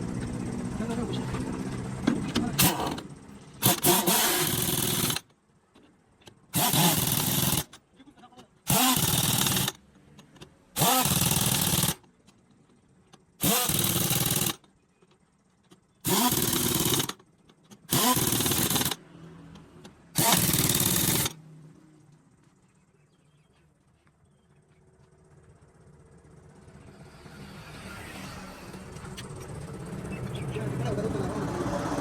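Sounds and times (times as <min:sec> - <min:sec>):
pneumatic impact wrench whining: 0:02.2 - 0:05.3, 0:06.5 - 0:07.8, 0:08.6 - 0:09.8, 0:10.8 - 0:12.1, 0:13.4 - 0:14.7, 0:16.0 - 0:19.0, 0:20.1 - 0:21.4.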